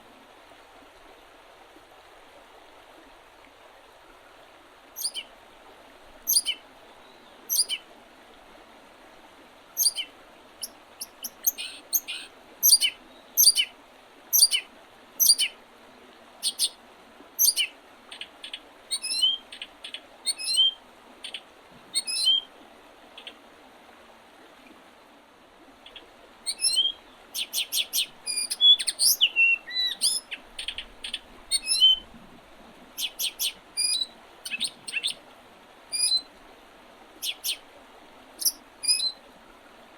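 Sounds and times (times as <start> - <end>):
songbirds singing: 5.0 - 5.3, 6.3 - 7.8, 9.8 - 13.7, 14.3 - 15.6, 16.4 - 16.8, 17.4 - 21.4, 22.0 - 22.5, 25.9 - 32.0, 33.0 - 35.2, 36.0 - 36.3, 37.2 - 37.6, 38.4 - 39.2.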